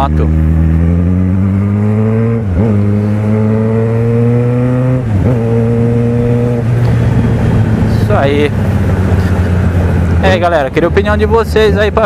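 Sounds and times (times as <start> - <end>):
motorcycle engine accelerating: 0.0 - 12.0
wind rush: 5.0 - 11.4.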